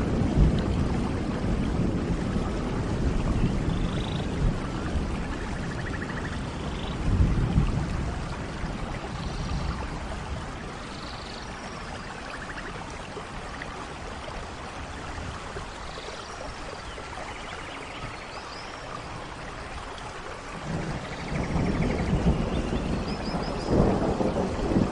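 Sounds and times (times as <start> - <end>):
steady rainfall: 0.0 - 24.9
thunder rolling: 20.6 - 24.9.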